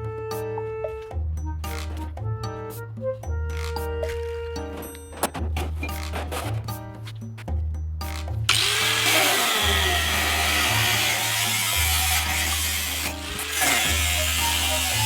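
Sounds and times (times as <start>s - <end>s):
background music with bass line: 0.0s - 15.0s
power tool cutting steel: 8.5s - 15.0s.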